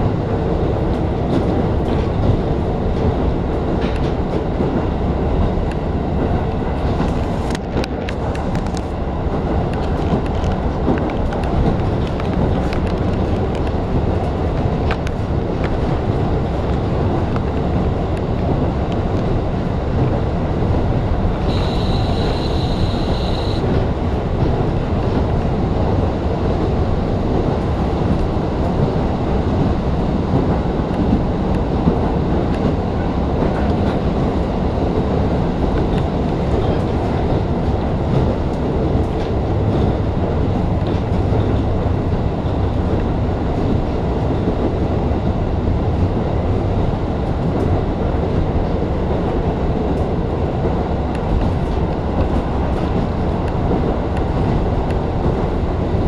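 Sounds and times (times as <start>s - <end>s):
train rumbling on rails: 0.0s - 56.0s
high steady squeal: 21.5s - 23.6s.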